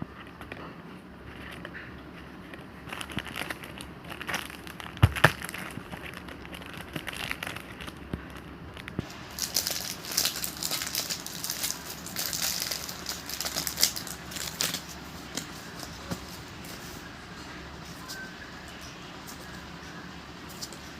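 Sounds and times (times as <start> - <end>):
plastic wrapping crinkling: 2.4 - 16.9.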